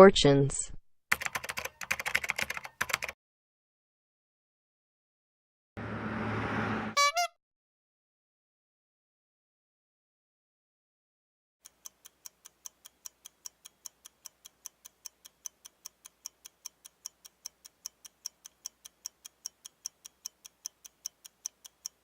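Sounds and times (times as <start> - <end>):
clock ticking fast: 11.6 - 22.0.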